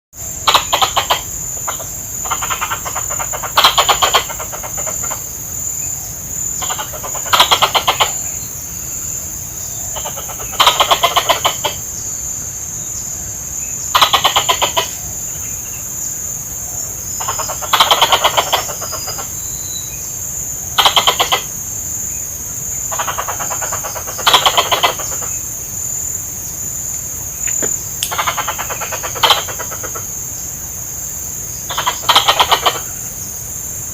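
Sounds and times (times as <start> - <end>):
squirrel chattering: 0.4 - 5.3, 6.4 - 8.4, 9.8 - 11.9, 13.9 - 15.1, 17.2 - 19.4, 20.7 - 21.6, 22.8 - 25.5, 27.4 - 30.1, 31.6 - 33.0.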